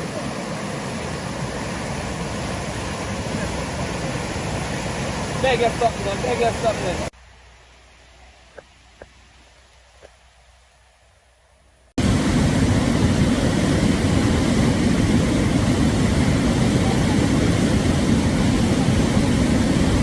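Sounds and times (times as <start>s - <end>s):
rushing river roar: 0.0s - 8.0s, 12.0s - 20.0s.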